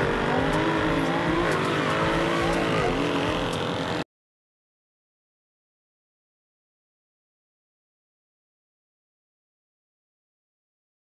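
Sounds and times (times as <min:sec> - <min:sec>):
car engine accelerating hard: 0:00.0 - 0:04.0.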